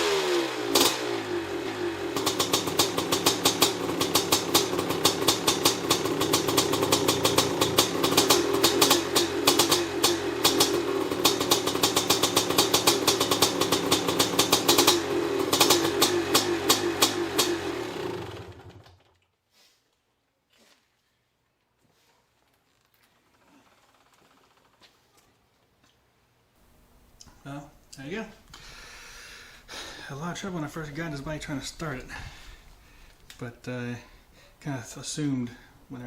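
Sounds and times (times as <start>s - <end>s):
dirt bike engine popping: 2.2s - 17.7s.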